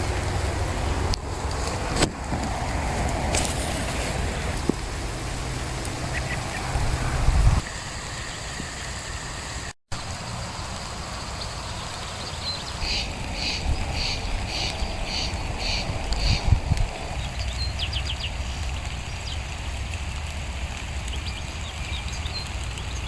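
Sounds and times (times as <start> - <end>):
wind on microphone: 0.0 - 8.9, 12.7 - 19.3.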